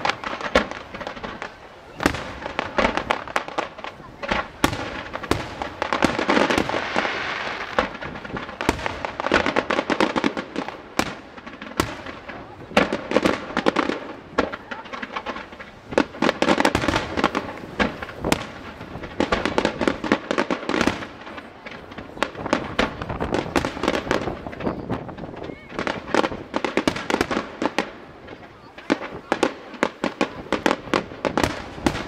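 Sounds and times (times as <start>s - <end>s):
fireworks bangs and crackling: 0.0s - 32.0s.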